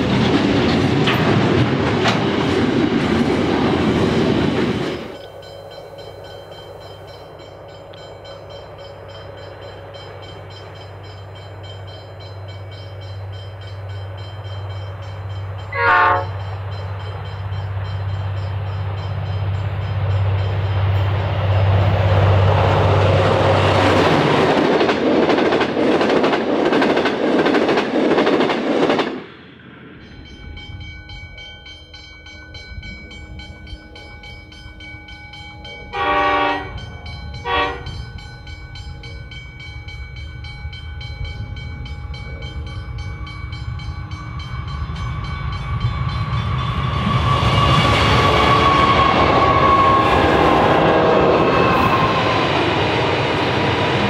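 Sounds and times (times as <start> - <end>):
freight train rumble: 0.0 - 54.0
passenger train passing at speed: 0.0 - 54.0
distant train horn: 5.2 - 24.1, 35.7 - 38.1, 45.2 - 53.8.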